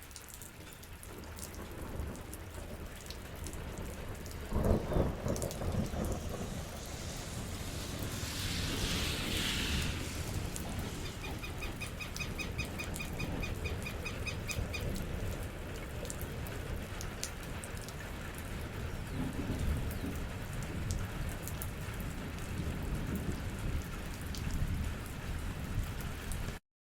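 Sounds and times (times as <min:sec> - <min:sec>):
steady rain falling: 0:00.0 - 0:26.6
low rumble: 0:04.2 - 0:12.4
sharp drips: 0:05.2 - 0:15.4.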